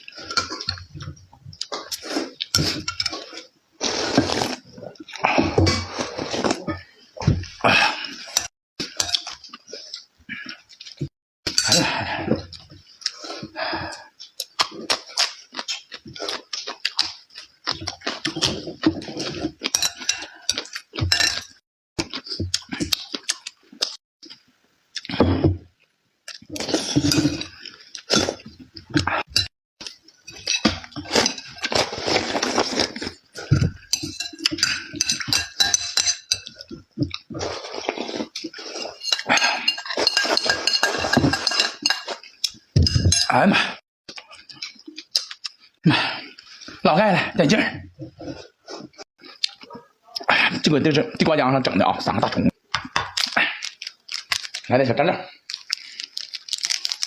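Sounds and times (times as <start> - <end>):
utensils clinking and scraping plates: 18.2 - 21.6, 30.2 - 43.4.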